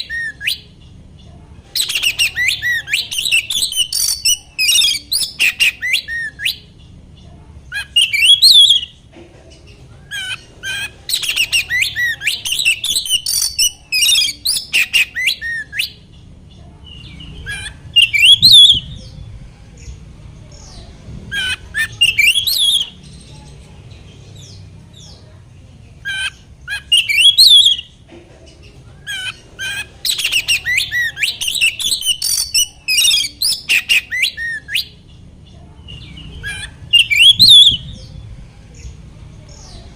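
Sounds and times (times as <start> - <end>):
bird singing whistles and chatter: 0.0 - 0.8, 1.7 - 6.9, 7.6 - 9.1, 10.0 - 25.3, 26.0 - 28.0, 28.6 - 39.9
faint low hum: 0.0 - 39.9.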